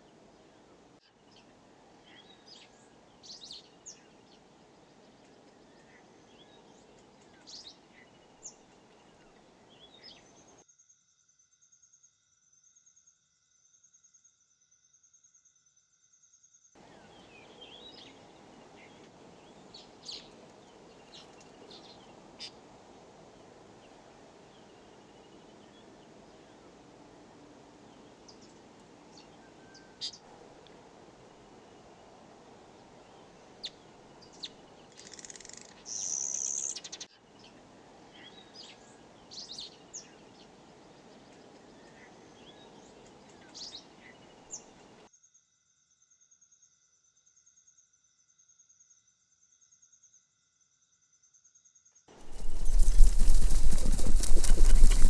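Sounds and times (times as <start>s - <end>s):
steady background hiss: 16.8s - 36.6s, 52.1s - 55.0s
bird chirps and calls: 52.2s - 55.0s.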